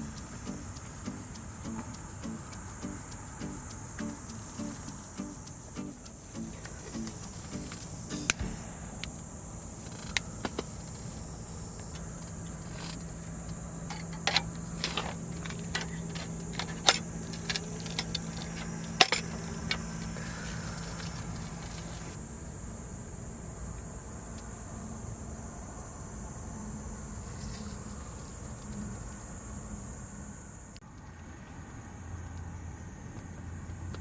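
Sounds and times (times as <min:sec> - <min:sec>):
low steady hum: 0:00.0 - 0:22.0
insect drone: 0:00.0 - 0:34.0.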